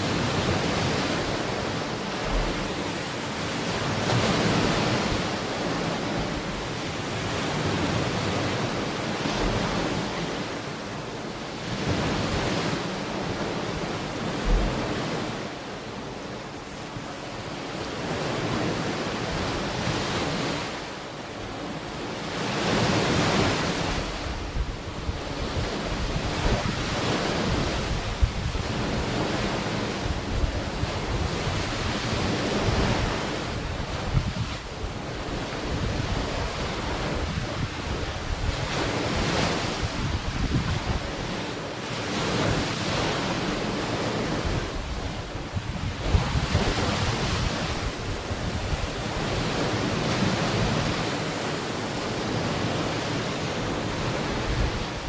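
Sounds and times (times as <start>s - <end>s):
ocean waves breaking on shore: 0.0s - 55.0s
wind buffeting microphone: 11.6s - 15.4s, 22.6s - 51.5s.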